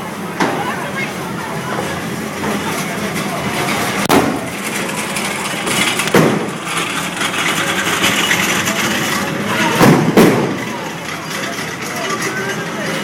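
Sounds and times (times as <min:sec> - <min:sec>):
sharp bangs: 0:04.0 - 0:11.0.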